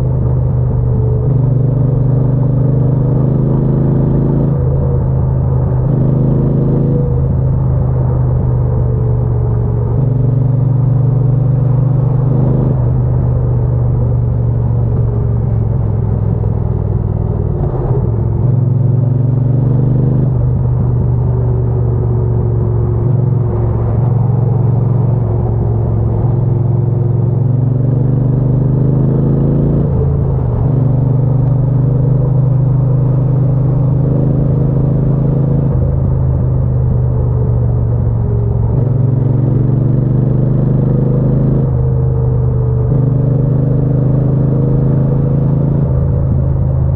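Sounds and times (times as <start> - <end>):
motorcycle engine revving: 14.7 - 46.9.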